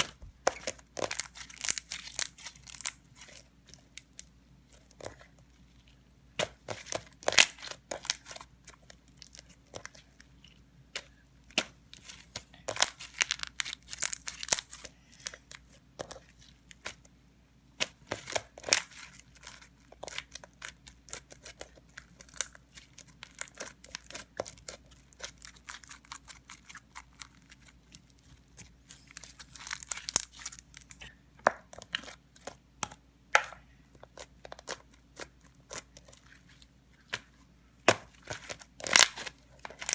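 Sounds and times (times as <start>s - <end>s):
slime crackling and popping: 11.0s - 15.5s, 28.8s - 31.0s, 37.8s - 39.9s.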